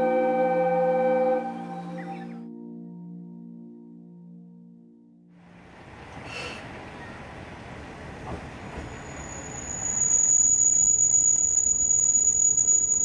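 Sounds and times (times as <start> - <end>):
diesel railcar rumbling: 5.4 - 13.0
high-pitched brake squeal: 8.7 - 13.0.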